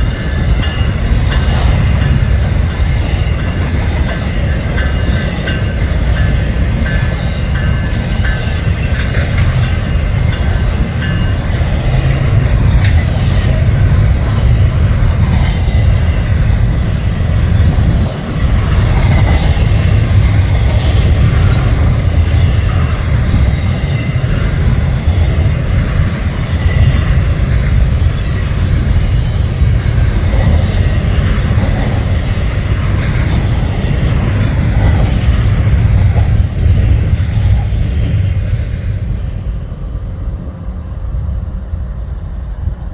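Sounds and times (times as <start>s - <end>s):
freight train rolling on rails: 0.0s - 42.9s.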